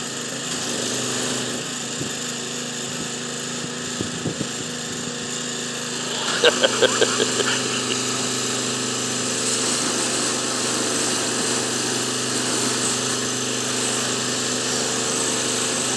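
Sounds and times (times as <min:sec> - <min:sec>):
water spray hiss: 0:05.9 - 0:08.5.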